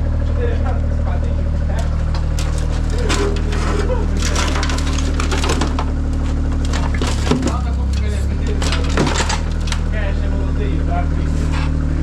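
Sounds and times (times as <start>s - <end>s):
low engine-like hum: 0.0s - 12.0s
clicks knocks and rattles: 1.8s - 10.0s.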